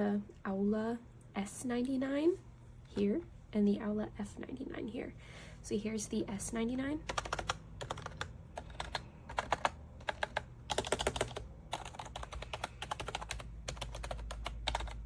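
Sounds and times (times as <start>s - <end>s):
mechanical keyboard typing: 7.1s - 15.0s.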